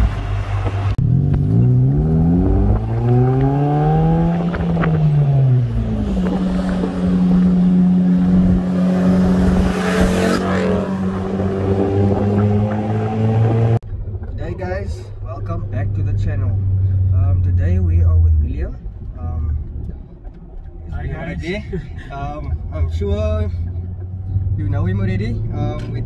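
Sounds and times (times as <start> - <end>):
car engine accelerating: 0.0 - 14.2
road noise: 0.0 - 26.0.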